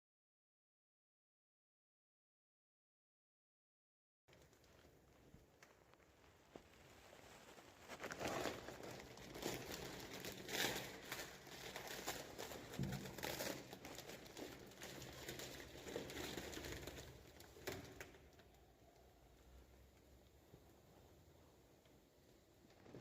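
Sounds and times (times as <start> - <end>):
packing material crinkling: 4.3 - 19.2, 22.6 - 23.0.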